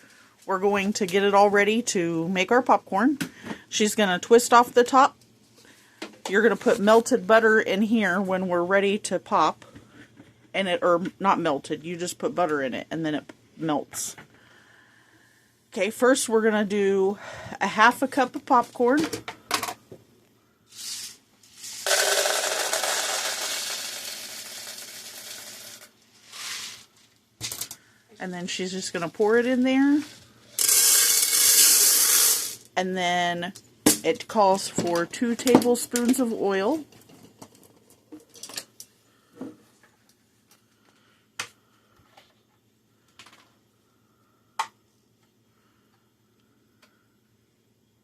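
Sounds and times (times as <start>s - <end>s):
popcorn kernels being poured: 20.7s - 26.9s, 30.0s - 32.6s.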